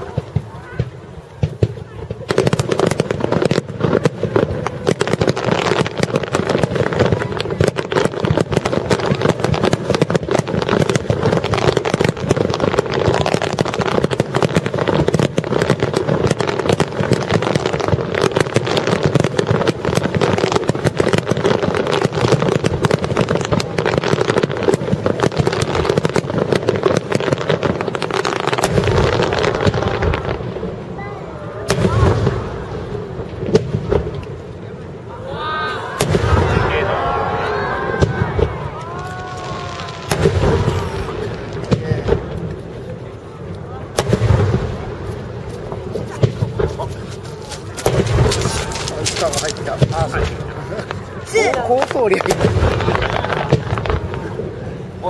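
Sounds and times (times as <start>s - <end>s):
firework shells bursting: 44.0s - 54.3s.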